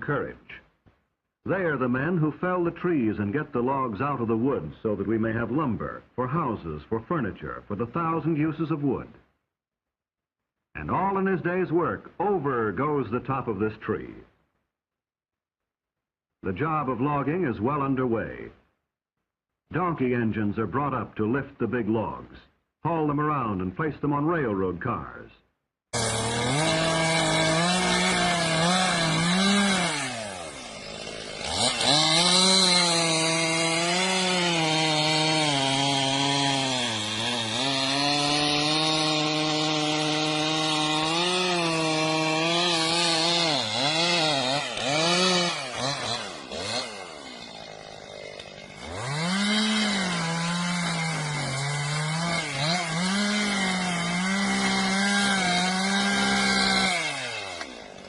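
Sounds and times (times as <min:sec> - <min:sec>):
chainsaw cutting: 0:26.0 - 0:58.0.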